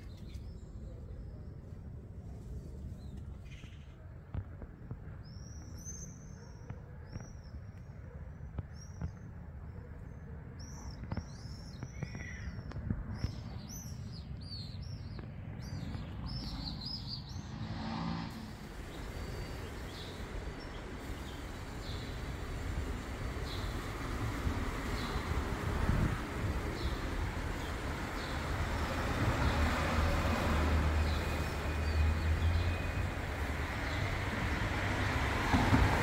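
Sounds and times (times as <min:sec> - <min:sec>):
small birds chirping: 0:05.0 - 0:17.5, 0:18.5 - 0:30.2
steady hiss: 0:18.3 - 0:29.8.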